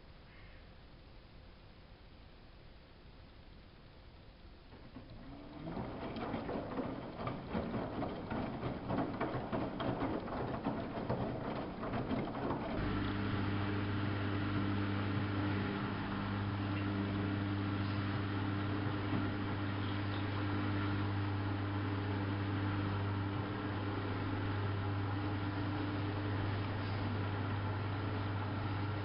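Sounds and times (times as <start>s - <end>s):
steady electric hum: 0.0s - 29.0s
washing machine sloshing and clattering: 4.7s - 29.0s.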